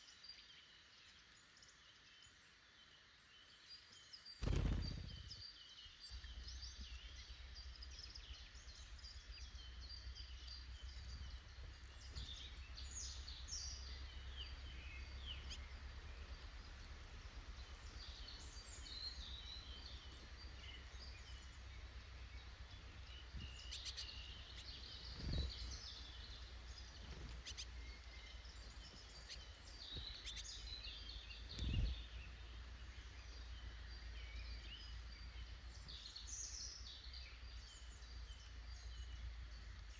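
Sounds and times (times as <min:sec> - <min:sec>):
songbirds chirping: 0:00.0 - 0:39.9
low rumble: 0:04.4 - 0:05.5.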